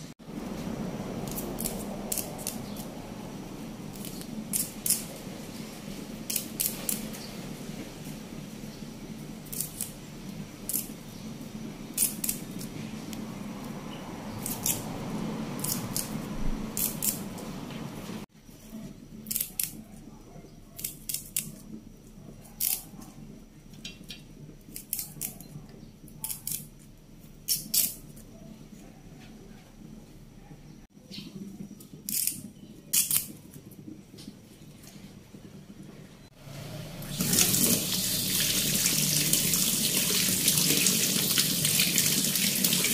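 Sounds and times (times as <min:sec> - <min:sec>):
leaves snapping off stems: 0:01.2 - 0:02.9, 0:06.3 - 0:07.2.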